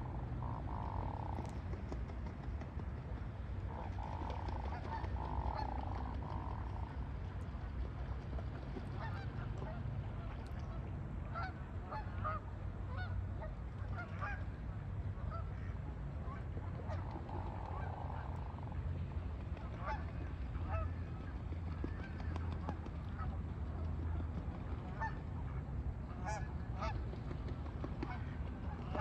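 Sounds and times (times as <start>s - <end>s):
steady low rumble: 0.0s - 29.0s
geese honking: 3.7s - 6.9s, 9.0s - 10.4s, 19.8s - 21.0s, 24.8s - 25.3s.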